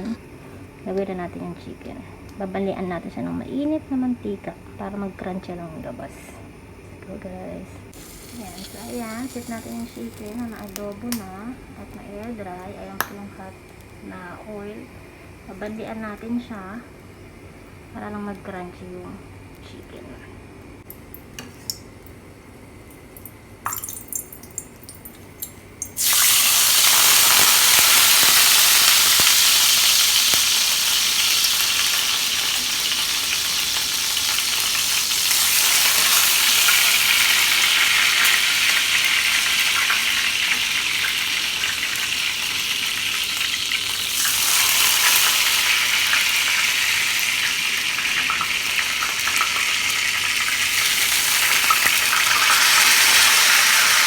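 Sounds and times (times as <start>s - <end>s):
oil sizzling loudly: 7.9s - 11.3s, 23.8s - 54.0s.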